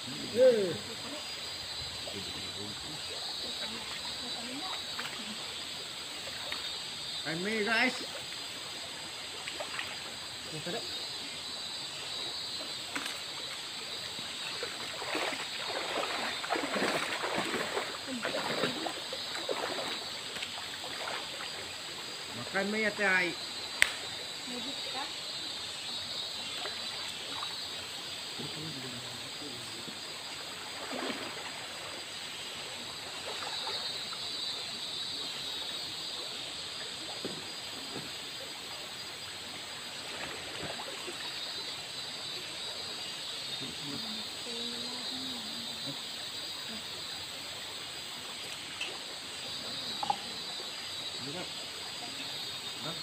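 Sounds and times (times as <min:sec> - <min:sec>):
splashing of wading: 0:01.8 - 0:10.9, 0:12.6 - 0:23.0, 0:26.4 - 0:27.8, 0:30.3 - 0:34.6, 0:39.8 - 0:43.0
river water flowing over rocks: 0:12.6 - 0:22.3.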